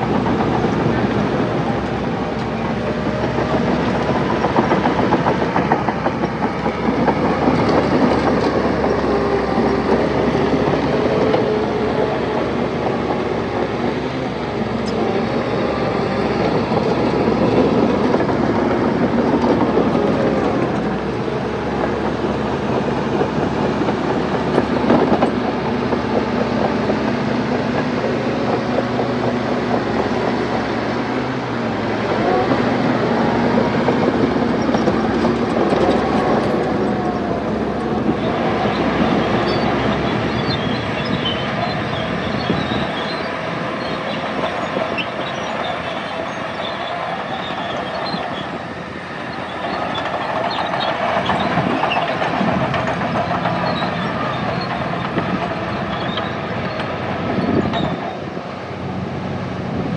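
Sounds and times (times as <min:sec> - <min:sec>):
bulldozer diesel engine: 0:00.0 - 0:59.9
steel tracks clanking: 0:00.0 - 0:59.9
metallic track squeaks: 0:32.0 - 0:58.4.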